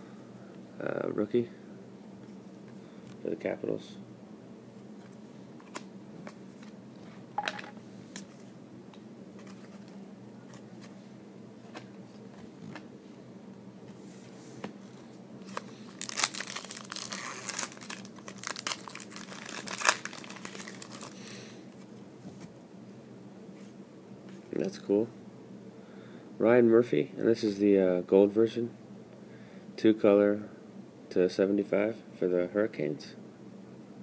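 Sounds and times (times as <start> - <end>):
foil wrapper crinkling and tearing: 15.4 - 21.4.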